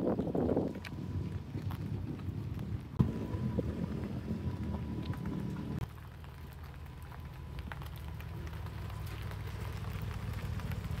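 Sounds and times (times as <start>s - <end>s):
car engine low rumble: 0.0s - 11.0s.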